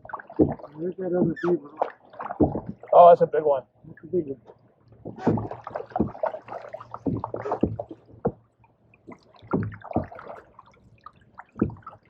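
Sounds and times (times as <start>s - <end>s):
canoe paddles stroking water: 0.0s - 3.3s, 4.9s - 12.0s
water splashing and dripping: 0.0s - 3.3s, 4.4s - 12.0s
sharp knocks: 0.3s - 1.5s, 2.2s - 2.9s, 5.0s - 6.4s, 7.0s - 8.4s, 9.4s - 10.3s, 11.6s - 11.9s.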